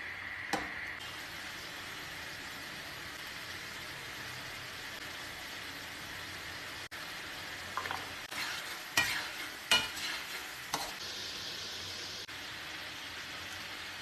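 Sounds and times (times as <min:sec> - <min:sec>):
food sizzling in a pan: 0:00.0 - 0:14.0
spatula scraping and clanking pan: 0:07.7 - 0:11.0.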